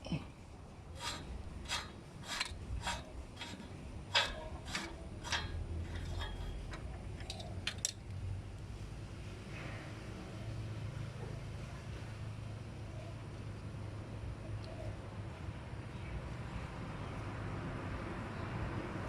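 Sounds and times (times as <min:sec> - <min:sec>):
tool scraping strokes: 0:01.0 - 0:07.7.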